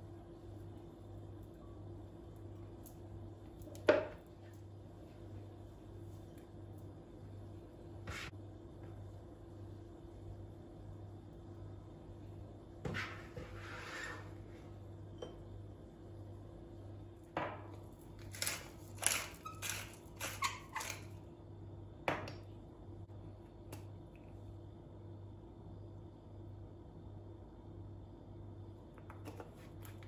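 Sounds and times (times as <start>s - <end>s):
steady low hum: 0.0s - 19.1s.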